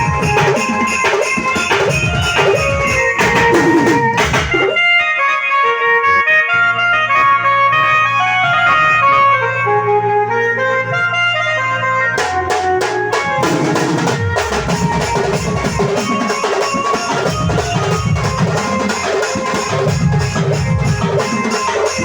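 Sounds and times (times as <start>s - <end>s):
drum kit beat: 0.0s - 4.8s, 12.2s - 22.0s
held melody notes: 0.0s - 22.0s.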